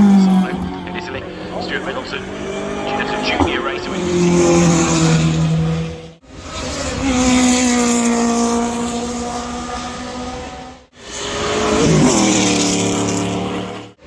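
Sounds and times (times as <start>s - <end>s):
racing car engine revving: 0.0s - 14.0s.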